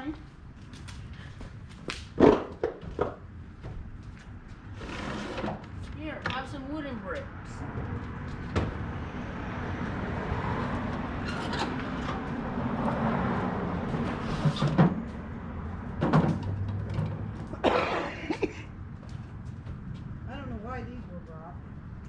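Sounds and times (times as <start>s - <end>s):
boxes and wood scraping: 4.6s - 6.0s, 13.8s - 15.2s.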